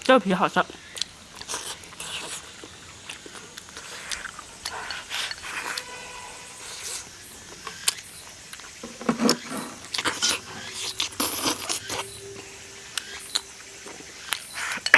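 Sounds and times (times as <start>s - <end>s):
person chewing with mouth smacks: 0.6s - 5.9s, 6.7s - 12.4s.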